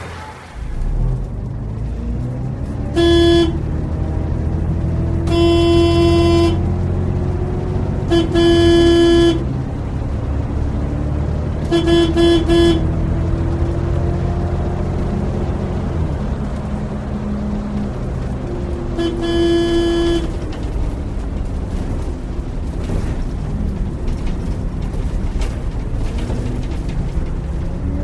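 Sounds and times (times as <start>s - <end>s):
bus engine rumbling: 0.0s - 28.0s
horn blast: 3.0s - 3.8s, 5.2s - 6.8s, 8.0s - 9.6s, 11.6s - 13.2s, 18.9s - 20.5s.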